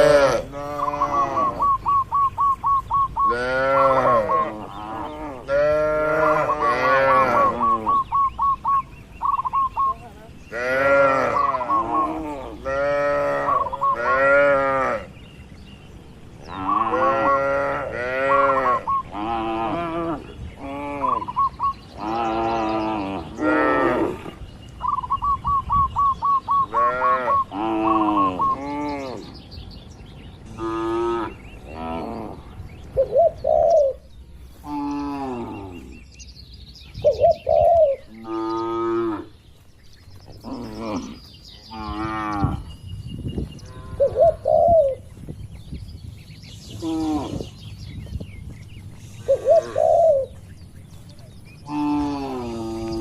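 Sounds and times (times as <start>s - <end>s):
cattle mooing: 0.0s - 1.8s, 3.3s - 8.0s, 10.5s - 15.1s, 16.5s - 21.3s, 40.4s - 42.7s, 51.6s - 53.0s
bird trilling: 0.0s - 15.1s, 16.4s - 19.3s, 20.9s - 29.4s, 33.0s - 34.1s, 36.9s - 39.3s, 40.3s - 45.1s, 48.9s - 53.0s.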